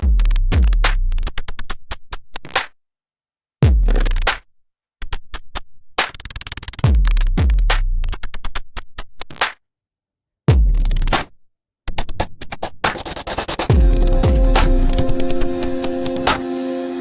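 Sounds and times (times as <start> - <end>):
drum machine beat: 0.0 - 1.4, 3.6 - 4.5, 6.7 - 8.6, 10.5 - 11.3, 12.0 - 17.0
deep bass kicks: 13.7 - 15.1.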